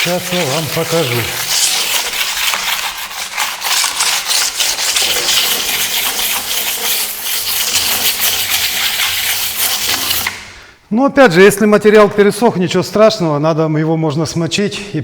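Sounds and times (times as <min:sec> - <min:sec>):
trowel scraping plaster: 0:00.0 - 0:10.6.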